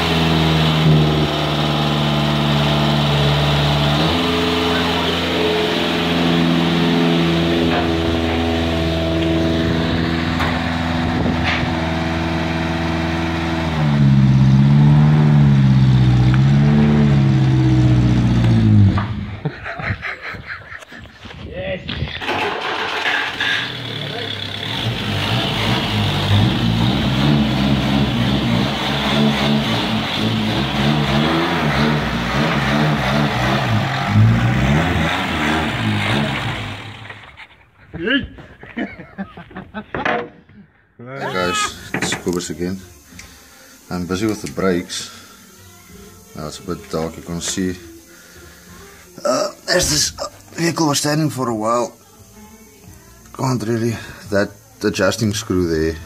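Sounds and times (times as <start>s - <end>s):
engine idling and revving: 0.0s - 19.6s, 22.1s - 37.6s.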